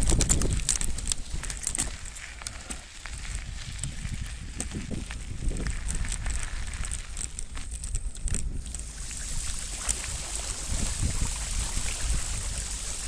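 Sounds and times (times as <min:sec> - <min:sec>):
wind rumbling on microphone: 0:00.0 - 0:13.0
sharp rattles: 0:04.9 - 0:08.7
tyres rolling on wet ground: 0:06.4 - 0:13.0.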